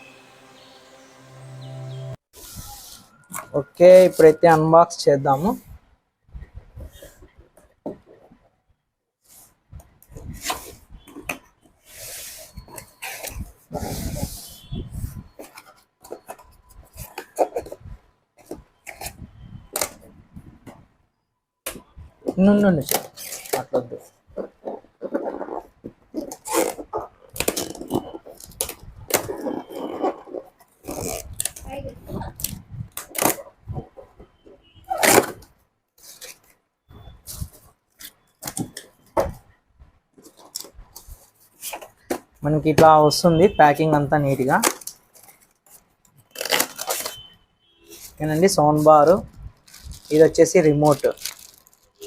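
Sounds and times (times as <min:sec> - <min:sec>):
cardboard scraping and rustling: 0:24.4 - 0:31.6
cardboard packaging rustling: 0:44.4 - 0:47.3, 0:47.9 - 0:52.0.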